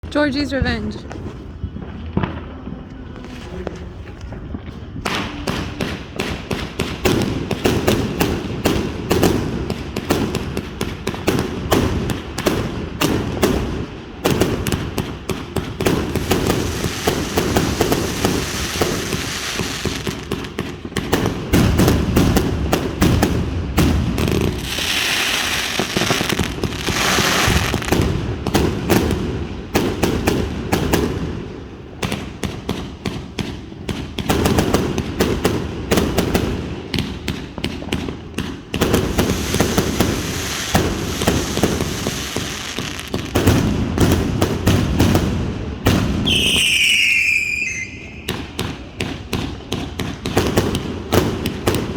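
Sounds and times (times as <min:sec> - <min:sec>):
firework cracks and bangs: 0:00.1 - 0:51.9
firework hiss: 0:16.0 - 0:20.6, 0:24.2 - 0:28.0, 0:38.9 - 0:43.4
falling whistle: 0:46.3 - 0:48.3.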